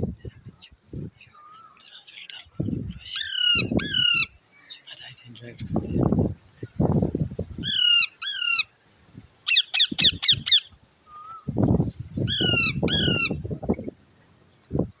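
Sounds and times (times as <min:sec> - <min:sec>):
crickets chirring: 0:00.0 - 0:15.0
parrots squawking: 0:03.0 - 0:04.3, 0:07.6 - 0:08.7, 0:09.5 - 0:11.4, 0:12.3 - 0:13.4.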